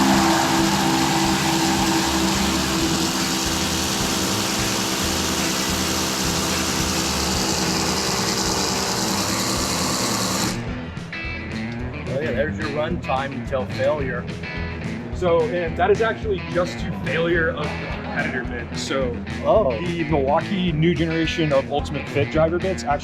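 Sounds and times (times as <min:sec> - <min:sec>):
impact drivers hammering: 0:00.0 - 0:10.7.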